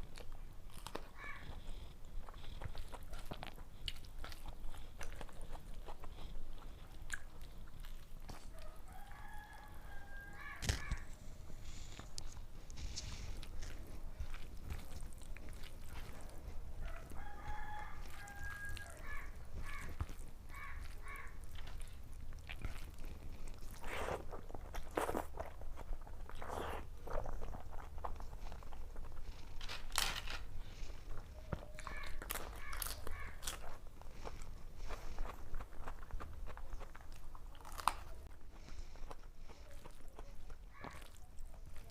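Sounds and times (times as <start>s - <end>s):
chewing and crunching food: 0.0s - 41.9s
chicken calling: 8.6s - 11.2s, 16.8s - 21.4s, 31.3s - 33.5s.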